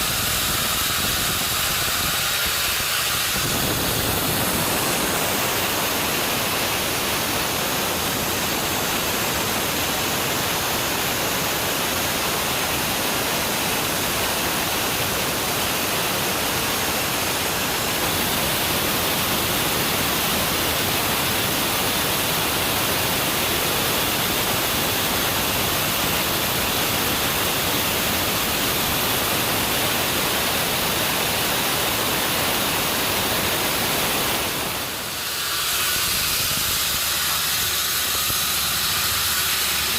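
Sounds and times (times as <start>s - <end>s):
sawmill rushing hiss: 0.0s - 39.9s.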